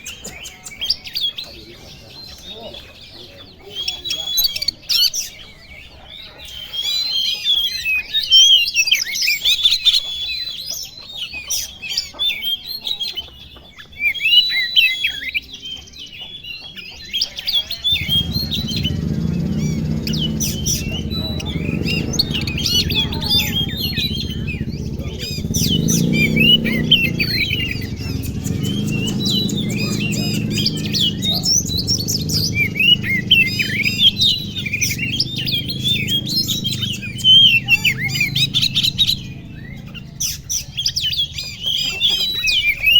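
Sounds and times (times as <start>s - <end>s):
birds singing: 0.0s - 42.9s
steady low rumble: 17.9s - 41.6s.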